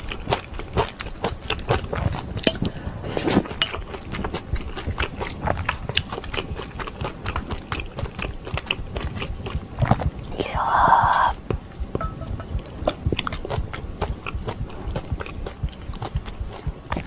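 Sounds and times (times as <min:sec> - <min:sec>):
person chewing noodles: 0:00.0 - 0:17.0.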